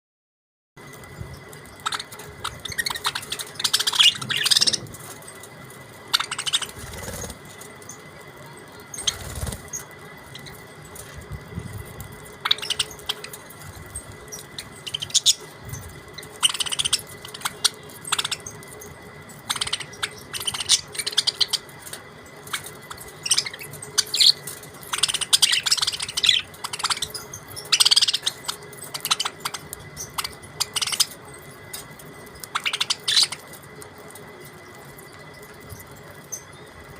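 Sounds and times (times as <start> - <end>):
budgerigars chirping: 1.8 - 5.1, 6.1 - 7.4, 8.9 - 10.6, 12.4 - 13.6, 14.3 - 18.6, 19.4 - 21.8, 22.5 - 31.2, 32.4 - 33.5.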